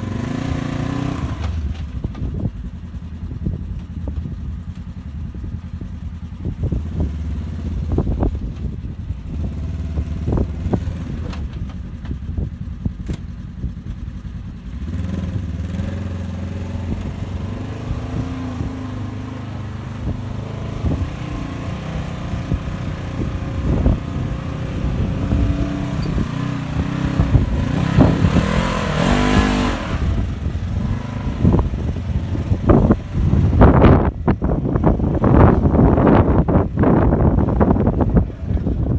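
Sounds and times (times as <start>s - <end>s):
engine revving: 0.0s - 2.2s, 9.2s - 11.8s, 14.6s - 38.9s.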